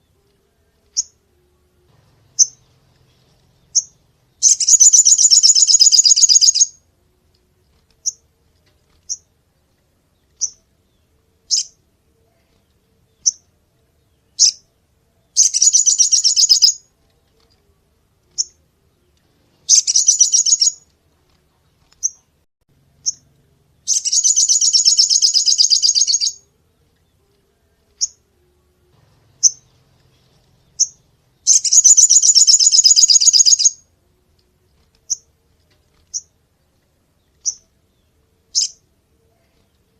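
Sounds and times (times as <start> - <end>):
songbird chip notes: 0.0 - 20.9, 21.5 - 39.9
buzzy bird trills: 2.2 - 6.8, 11.5 - 11.8, 15.4 - 16.9, 19.7 - 20.8, 23.0 - 26.5, 29.1 - 33.8, 38.5 - 39.6.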